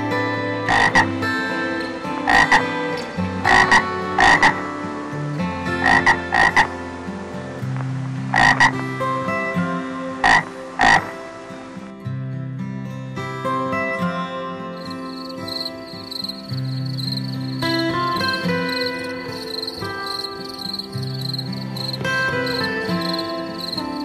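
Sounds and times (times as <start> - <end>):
background music plucked strings: 0.0 - 24.0
short animal calls: 0.7 - 1.1, 2.3 - 2.7, 3.5 - 4.6, 5.8 - 6.7, 8.3 - 8.8, 10.2 - 11.2.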